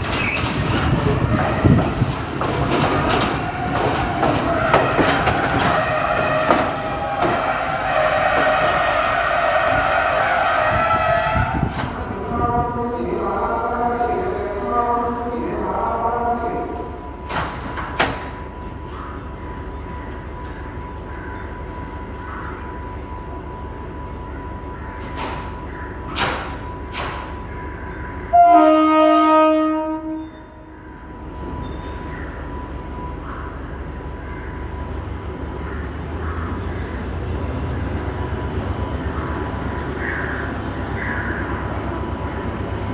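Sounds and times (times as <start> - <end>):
train rumbling on rails: 0.0 - 42.9
train horn chord: 4.6 - 11.9, 28.3 - 30.7.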